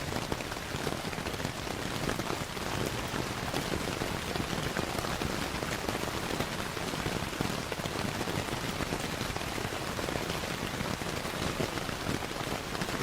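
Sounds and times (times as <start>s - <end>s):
steady rainfall: 0.0s - 13.0s.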